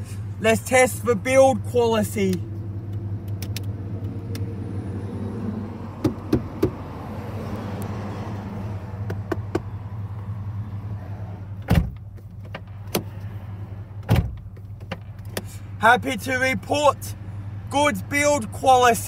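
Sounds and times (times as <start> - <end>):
car engine idling: 0.0 - 19.0
knocking on interior trim: 6.0 - 6.8.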